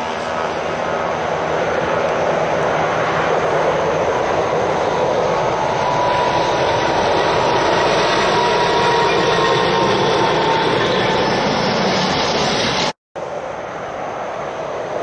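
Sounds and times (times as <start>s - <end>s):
truck traffic roar: 0.0s - 15.0s.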